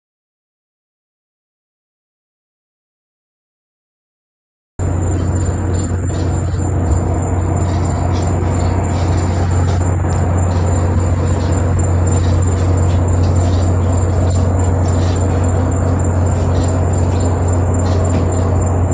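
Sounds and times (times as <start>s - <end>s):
crackling: 4.8s - 18.9s.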